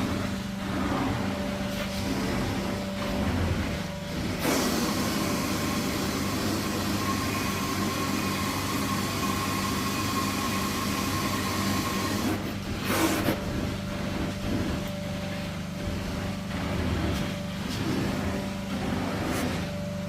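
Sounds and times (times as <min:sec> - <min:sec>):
vacuum suction rushing: 0:00.0 - 0:07.7
pressurised spray hissing: 0:00.0 - 0:13.4.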